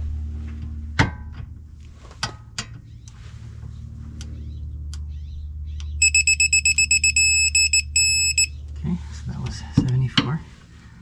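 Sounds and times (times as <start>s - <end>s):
steady low hum: 0.0s - 11.0s
torque wrench beeping: 6.0s - 8.6s.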